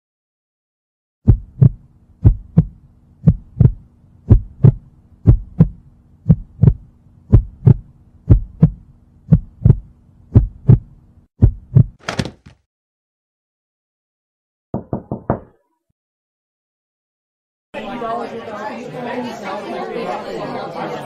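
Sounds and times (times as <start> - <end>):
heartbeat thumps: 1.2 - 12.0
faint steady hum: 1.4 - 11.3.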